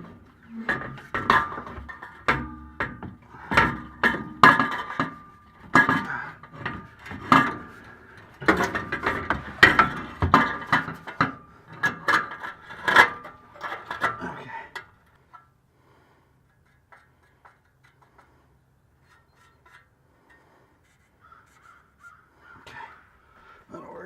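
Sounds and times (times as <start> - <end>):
exhaust pipe clanking against metal: 0.0 - 15.6, 16.4 - 22.1.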